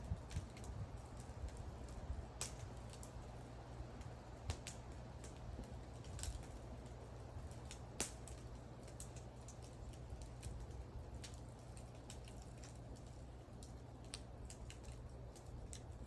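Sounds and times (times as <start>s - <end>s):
burning wood popping and crackling: 0.0s - 16.0s
flames rumbling softly: 0.0s - 16.0s.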